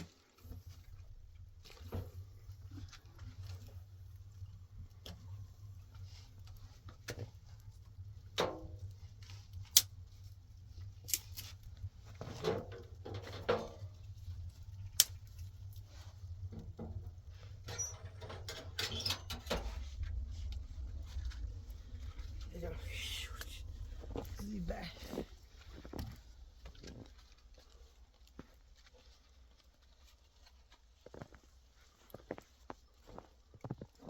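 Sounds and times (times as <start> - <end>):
steady low hum: 19.4 - 28.4.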